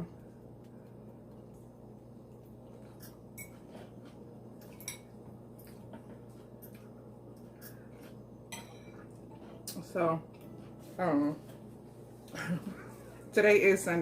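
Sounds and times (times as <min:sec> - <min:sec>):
cutlery clinking on a plate: 0:08.5 - 0:09.0.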